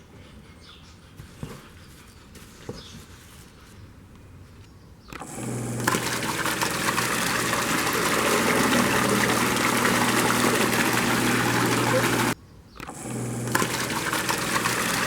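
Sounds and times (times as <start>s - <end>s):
motor humming: 5.2s - 15.0s
water gushing through pipes: 5.3s - 12.4s, 13.1s - 15.0s.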